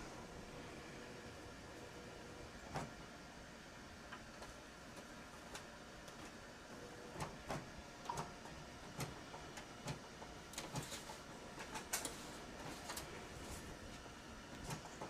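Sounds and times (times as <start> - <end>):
printer paper feed clicks: 2.6 - 3.0, 4.1 - 15.0.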